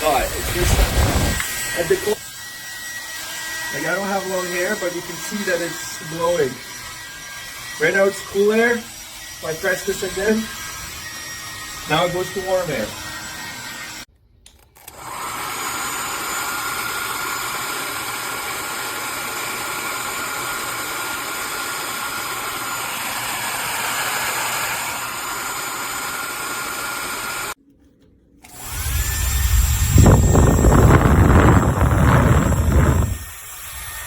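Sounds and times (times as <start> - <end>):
hair dryer running: 0.0 - 7.2, 14.8 - 27.6, 28.4 - 33.4.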